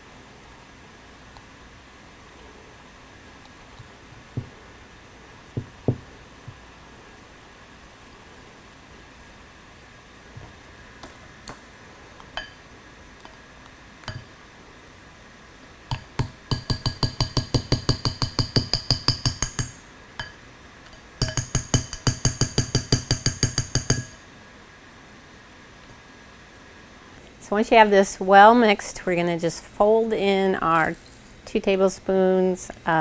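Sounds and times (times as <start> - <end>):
whisk clinking against mug: 15.9 - 20.3, 21.2 - 24.2.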